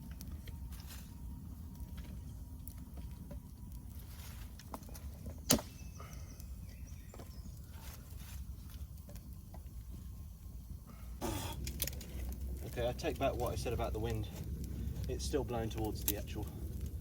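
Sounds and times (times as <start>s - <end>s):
campfire crackling: 0.0s - 17.0s
wind rumble on microphone: 0.0s - 17.0s
sharp loud crack of fire: 11.2s - 17.0s.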